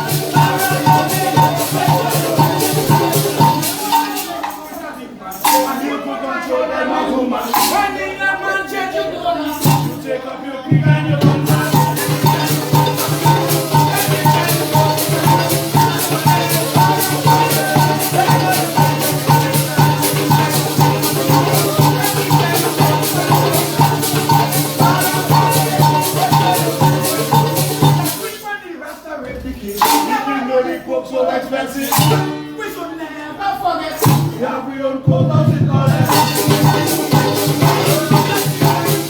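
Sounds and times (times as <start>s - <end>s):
maracas shaking: 0.0s - 30.8s, 31.5s - 32.8s, 33.8s - 39.0s
strummed chords: 11.2s - 28.2s, 36.0s - 39.0s.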